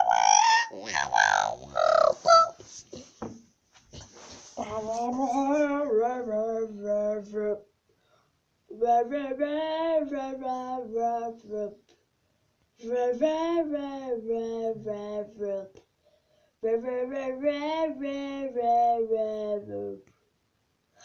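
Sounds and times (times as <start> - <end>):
high wordless singing voice: 0.0 - 2.6, 4.6 - 7.8, 8.7 - 11.9, 12.8 - 15.8, 16.6 - 20.1.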